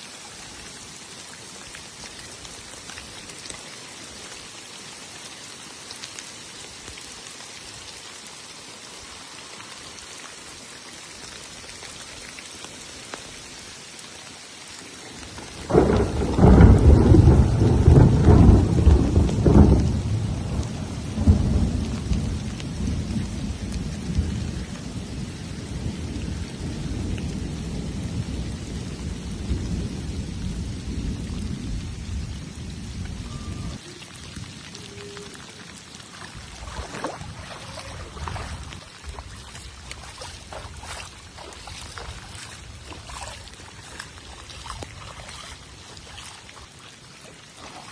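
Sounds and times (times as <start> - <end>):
steady rain falling: 0.0 - 47.9
thunder clap and rumble: 15.4 - 33.8, 36.3 - 43.2.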